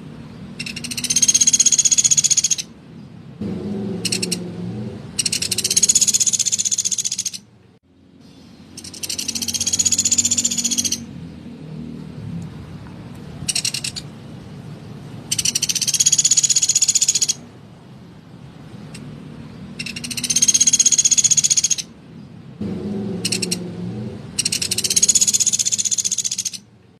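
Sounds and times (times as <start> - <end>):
woodpecker buzzy trills: 0.5 - 2.7, 3.4 - 7.5, 8.6 - 11.1, 13.4 - 14.1, 15.2 - 17.5, 19.7 - 21.9, 22.6 - 26.7.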